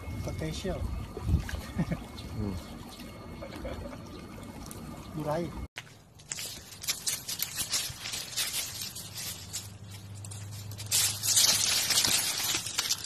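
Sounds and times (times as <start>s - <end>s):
dry leaves crackling and rustling: 5.8s - 13.0s.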